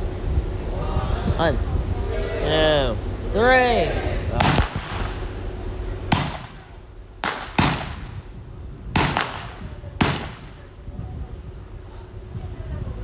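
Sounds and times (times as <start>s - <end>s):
blank gunshots with echo: 4.4s - 5.4s, 6.1s - 8.2s, 9.0s - 10.7s.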